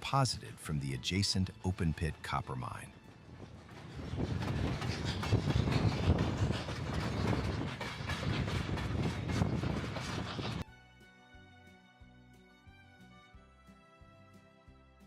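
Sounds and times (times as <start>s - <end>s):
steam train rumble: 0.0s - 10.6s.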